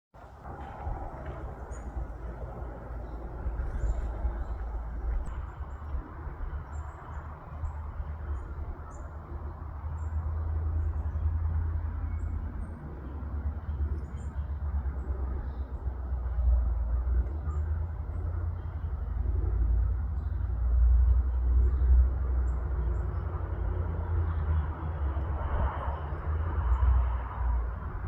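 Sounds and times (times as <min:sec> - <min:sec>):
steady low rumble: 0:00.2 - 0:28.0
small birds chirping: 0:00.6 - 0:10.2.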